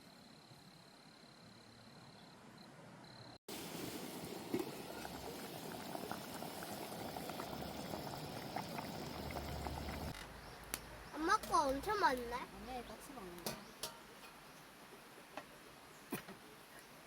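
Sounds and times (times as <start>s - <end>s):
pot boiling and bubbling: 3.5s - 14.0s.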